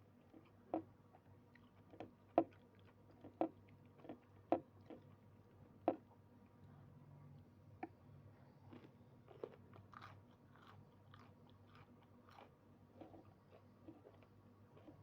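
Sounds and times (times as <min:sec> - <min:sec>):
person chewing food: 0:01.5 - 0:05.2, 0:08.7 - 0:15.0.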